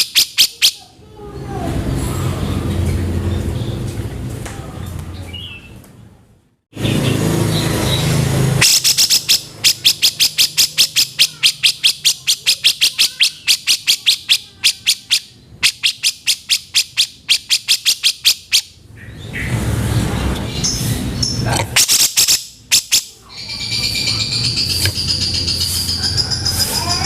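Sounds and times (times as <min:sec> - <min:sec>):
bird rasping chatter: 0:00.0 - 0:00.9, 0:06.8 - 0:19.6, 0:20.6 - 0:27.0.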